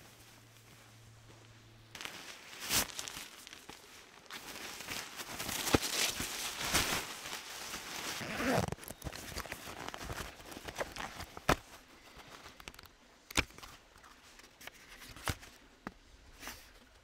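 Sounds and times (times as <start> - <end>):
rustling and crunching of gear: 0.0 - 17.0.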